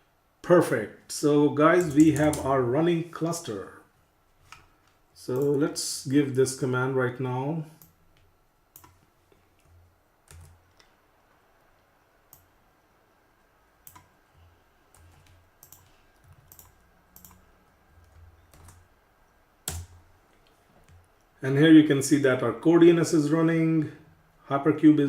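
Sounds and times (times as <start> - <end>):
typing on keyboard: 9.6 - 10.8, 15.0 - 18.8.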